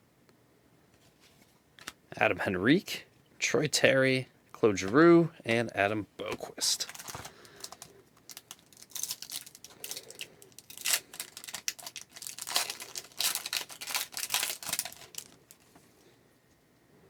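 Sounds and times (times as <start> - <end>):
wrapper being torn and crinkled: 6.7 - 15.7.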